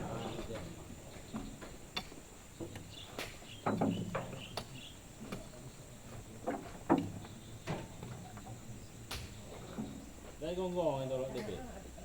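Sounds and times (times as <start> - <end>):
knocks and thuds: 0.0 - 5.5.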